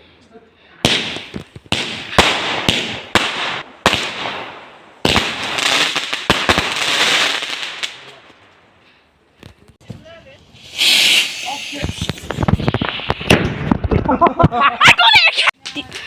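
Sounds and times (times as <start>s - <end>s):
firework bangs: 0.8s - 8.3s, 9.8s - 14.5s.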